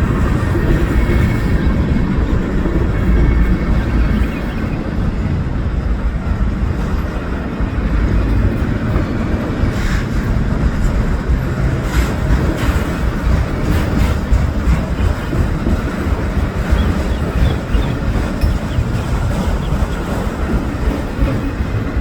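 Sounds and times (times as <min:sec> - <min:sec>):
train clacks: 0:00.0 - 0:22.0
train rumbling past: 0:00.0 - 0:22.0.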